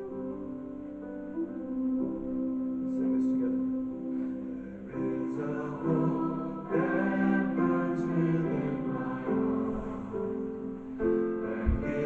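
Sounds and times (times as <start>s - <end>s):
choir singing worship song: 4.2s - 12.0s.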